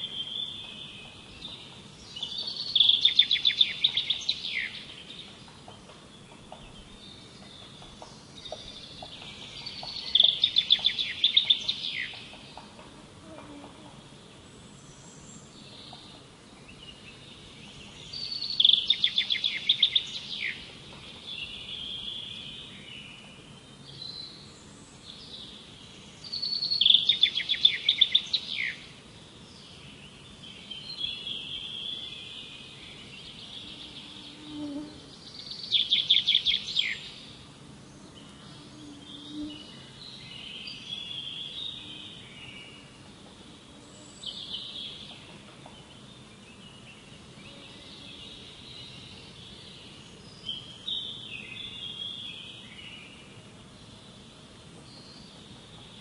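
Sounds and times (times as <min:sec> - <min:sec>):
bird song with fast high notes: 0:00.0 - 0:12.7, 0:14.7 - 0:37.4
soft bird chirps and calls: 0:00.0 - 0:14.0, 0:14.6 - 0:29.0, 0:29.6 - 0:37.4.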